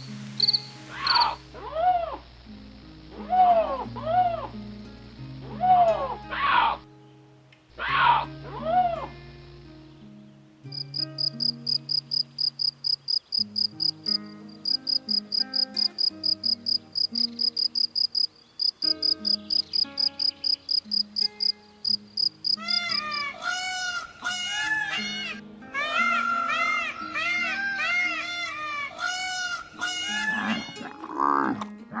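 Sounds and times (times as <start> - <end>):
cricket chirping: 0.0 - 5.9, 10.7 - 23.3
soft background music: 0.0 - 32.0
honking calls: 11.1 - 25.1.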